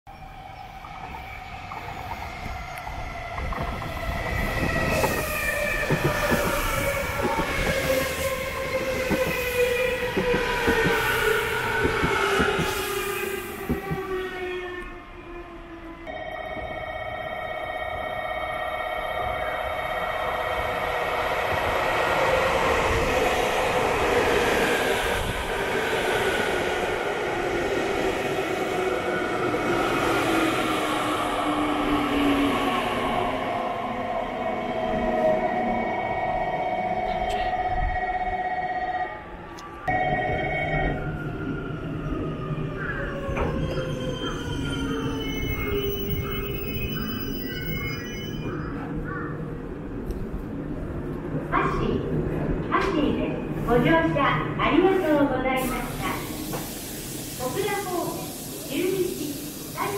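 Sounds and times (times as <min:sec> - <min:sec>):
train approaching: 0:00.1 - 0:59.9
wheels clicking on rails: 0:03.3 - 0:12.9.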